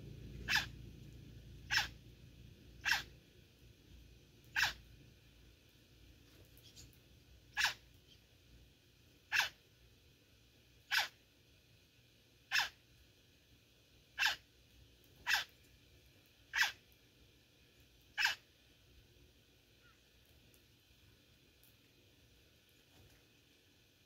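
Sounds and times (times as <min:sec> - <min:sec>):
bird harsh call: 0:00.4 - 0:00.7, 0:04.5 - 0:04.8, 0:18.2 - 0:18.4.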